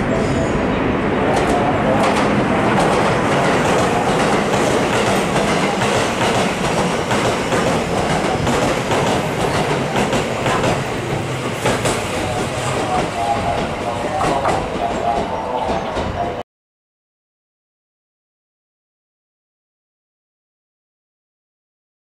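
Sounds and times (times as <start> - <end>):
electric train passing: 0.0 - 16.4
wheels clacking over rail joints: 1.3 - 16.3.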